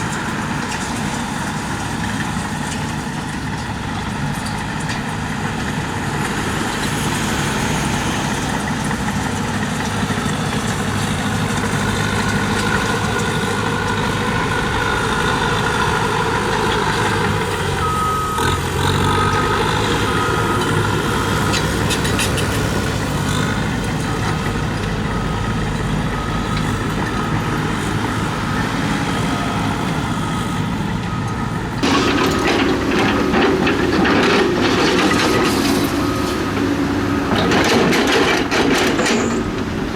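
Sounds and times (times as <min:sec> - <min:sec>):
diesel machinery running: 0:00.0 - 0:39.9
backup alarm beeping: 0:17.7 - 0:21.4
clattering: 0:31.8 - 0:36.6, 0:37.3 - 0:39.7.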